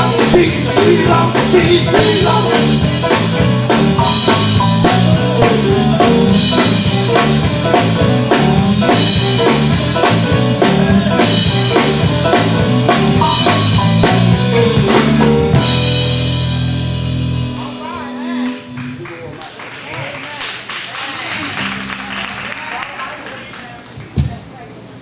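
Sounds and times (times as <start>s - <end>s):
bass line: 0.0s - 19.1s
electric guitar: 0.0s - 19.6s
drum kit beat: 0.0s - 19.8s.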